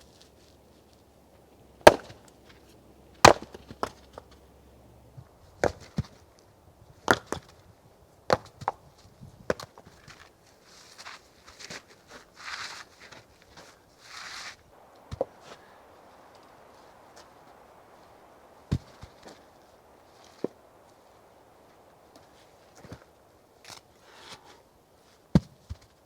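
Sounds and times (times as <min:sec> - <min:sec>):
wood splintering: 0:01.4 - 0:04.9
axe chopping firewood: 0:01.8 - 0:02.6, 0:03.2 - 0:04.3.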